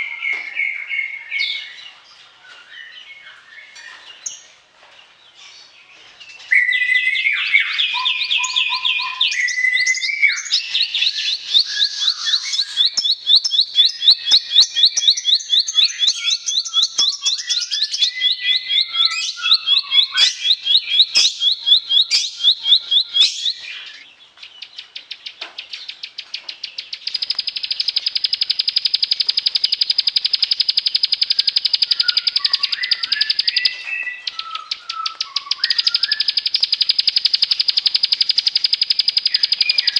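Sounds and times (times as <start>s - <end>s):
bird singing sharp notes: 7.4s - 39.9s
fast high bird trill: 8.4s - 24.0s, 27.1s - 39.9s.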